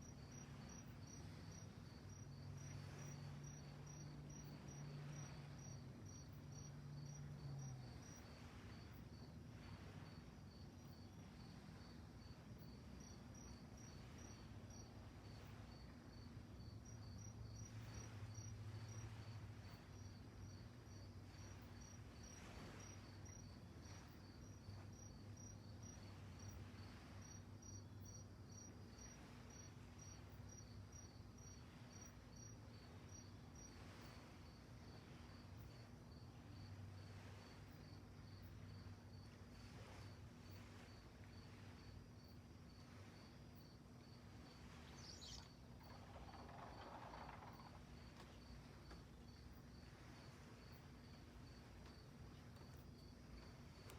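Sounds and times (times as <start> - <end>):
crickets chirping: 0.0 - 53.9
low steady hum: 0.0 - 53.9.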